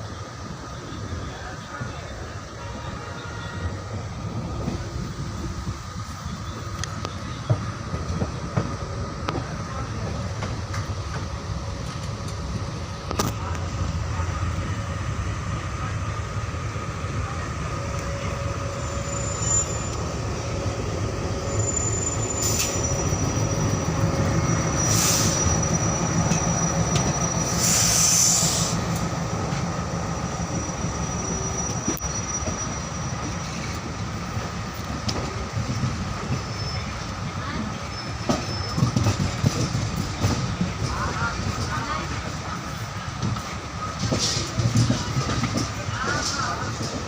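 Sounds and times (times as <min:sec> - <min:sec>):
train wheels rumbling on rails: 0:00.0 - 0:47.0
high wheel squeal: 0:18.0 - 0:20.3, 0:21.3 - 0:29.0, 0:30.2 - 0:33.8, 0:36.2 - 0:37.1, 0:37.8 - 0:39.1
short hissing bursts: 0:27.5 - 0:28.9.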